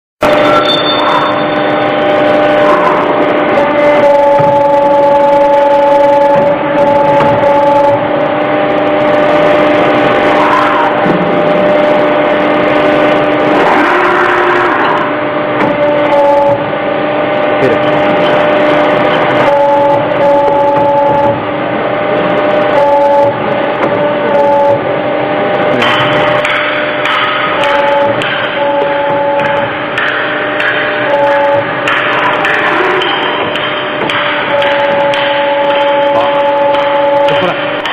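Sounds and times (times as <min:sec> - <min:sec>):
servo whine: 0:00.2 - 0:37.9
tube bending machine humming: 0:00.2 - 0:37.9.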